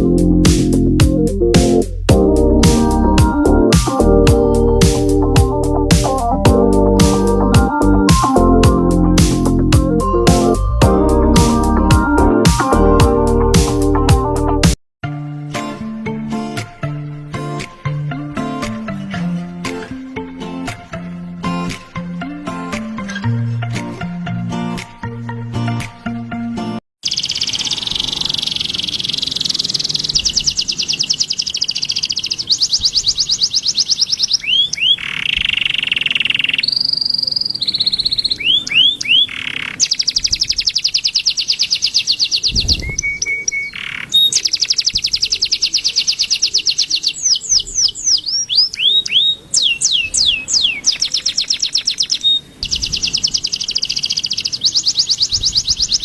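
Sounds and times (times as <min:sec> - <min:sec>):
bird singing fast high trills: 0:27.0 - 0:56.0
bird whistles sliding down: 0:42.3 - 0:45.1.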